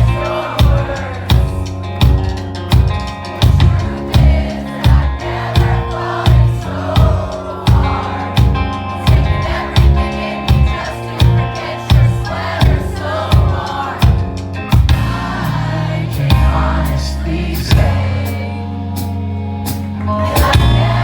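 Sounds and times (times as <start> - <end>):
person singing: 0.0 - 2.7, 3.4 - 14.4, 20.0 - 21.0
drum kit beat: 0.0 - 19.1, 19.7 - 21.0
rock band playing live: 0.0 - 21.0.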